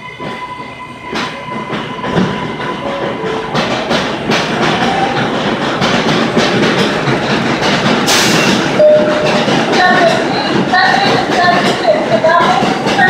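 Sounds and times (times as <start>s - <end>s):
train wheels clacking on rails: 0.0s - 13.0s.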